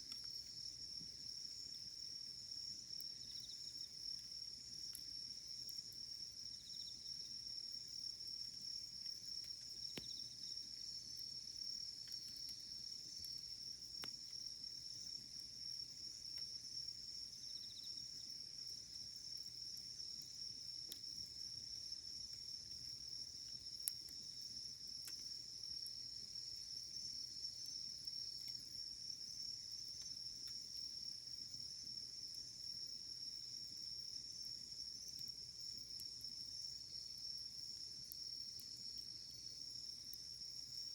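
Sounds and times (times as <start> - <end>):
wood fire crackling: 0.0 - 31.0
crickets trilling: 0.0 - 40.9.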